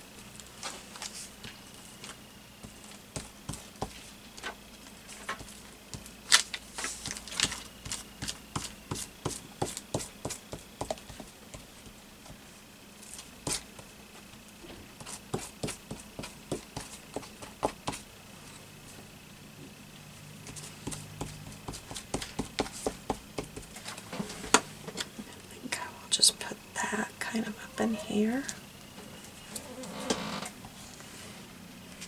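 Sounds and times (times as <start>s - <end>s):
paper rustling and tapping: 2.7s - 12.4s, 20.5s - 24.7s.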